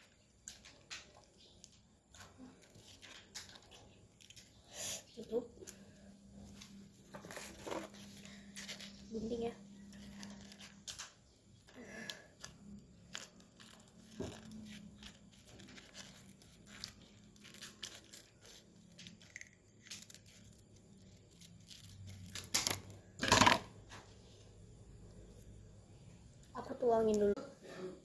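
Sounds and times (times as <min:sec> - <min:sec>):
plastic packaging crinkling: 0:07.0 - 0:23.0
plastic tearing: 0:11.9 - 0:23.7.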